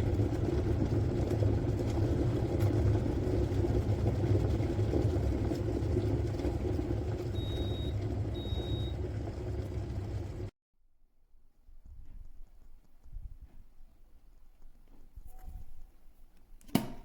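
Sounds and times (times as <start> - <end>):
kettle heating water rumble: 0.0 - 10.5.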